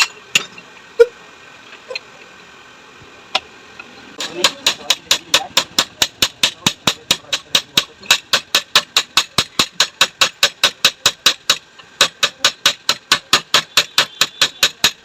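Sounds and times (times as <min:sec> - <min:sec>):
hammer blows on metal: 0:04.2 - 0:15.0.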